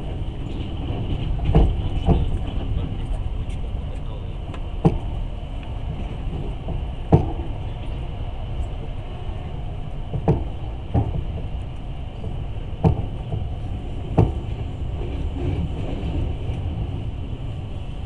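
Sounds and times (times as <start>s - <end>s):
train wheels rumbling on track: 0.0s - 18.0s
sharp knocks: 14.1s - 14.4s.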